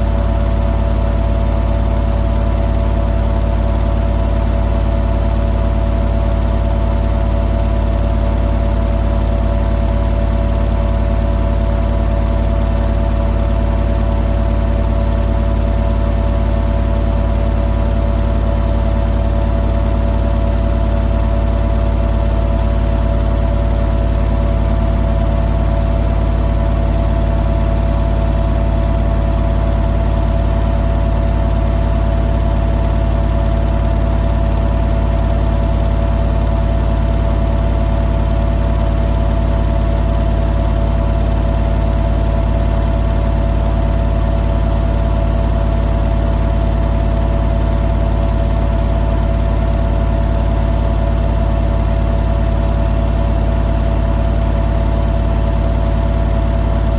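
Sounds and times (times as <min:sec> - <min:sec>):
washing machine spinning: 0:00.0 - 0:56.9.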